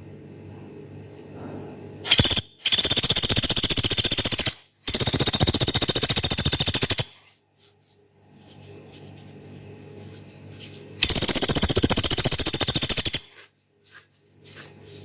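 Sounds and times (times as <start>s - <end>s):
woodpecker rattling trills: 2.1s - 7.2s, 11.0s - 13.3s.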